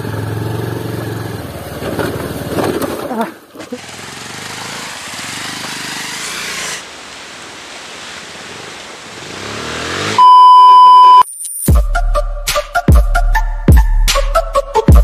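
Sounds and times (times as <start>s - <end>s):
motorcycle engine revving: 0.0s - 6.8s, 9.1s - 10.5s
loud high beep tone: 10.2s - 11.3s.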